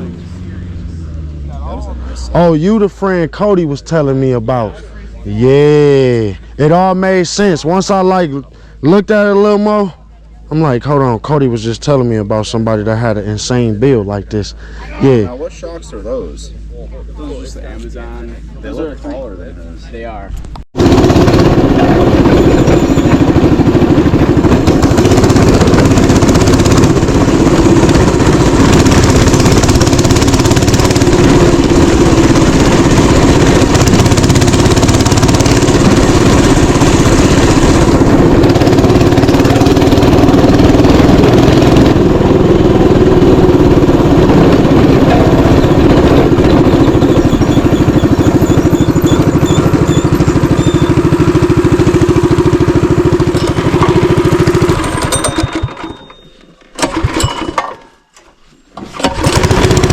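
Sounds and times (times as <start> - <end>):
mini-bike engine running: 20.8 - 57.6, 58.9 - 59.9.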